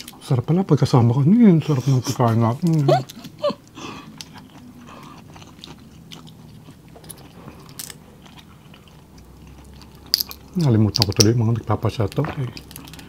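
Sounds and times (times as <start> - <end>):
chewing mouth sounds: 3.9 - 11.2.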